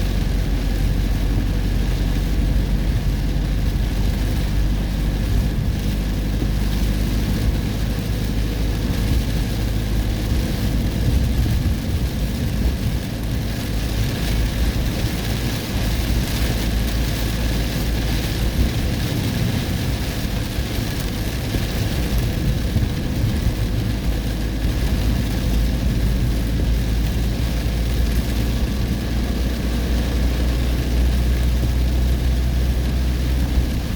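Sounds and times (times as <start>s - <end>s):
heavy rain rushing: 0.0s - 33.9s
vehicle rumbling on road: 0.0s - 33.9s.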